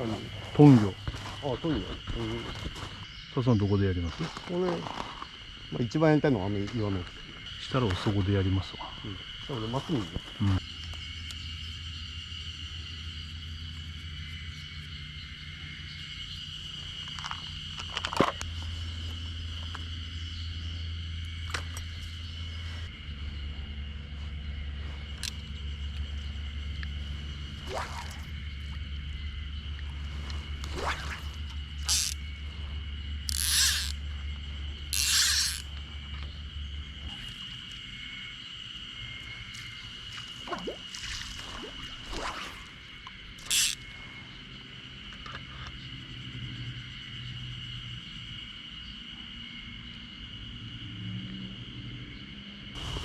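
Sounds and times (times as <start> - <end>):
cicadas droning: 0.0 - 53.0
low hum: 10.6 - 39.8.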